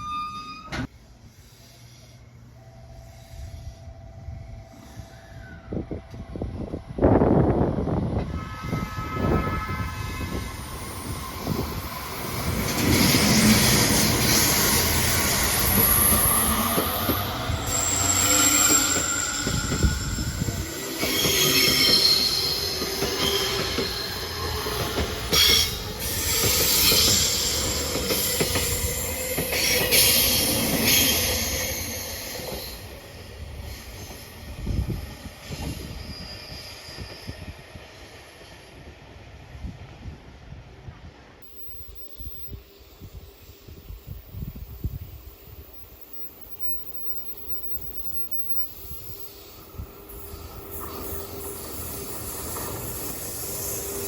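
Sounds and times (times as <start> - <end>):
metallic wheel squeal: 0.0 - 0.9, 8.4 - 32.8, 35.6 - 37.4
train wheels rumbling: 0.8 - 38.5.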